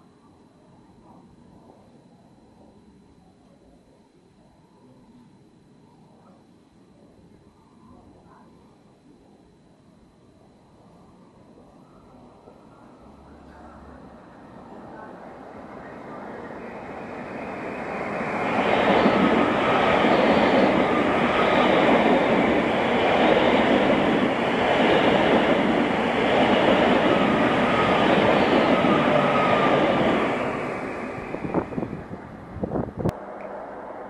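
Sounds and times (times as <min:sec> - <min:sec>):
train wheels rumbling on rail: 0:12.7 - 0:33.5.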